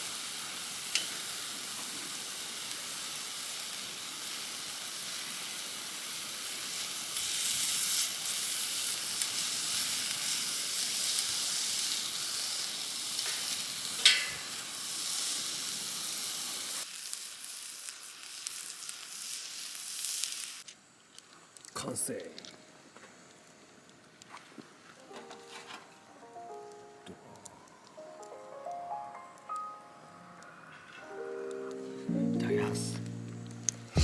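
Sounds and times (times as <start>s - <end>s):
food sizzling in a pan: 0.0s - 20.7s
short sharp sound: 33.3s - 34.0s.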